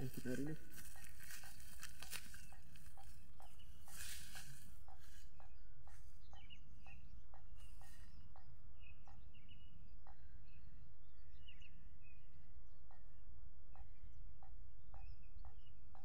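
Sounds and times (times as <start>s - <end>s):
birds chirping: 0.0s - 13.2s.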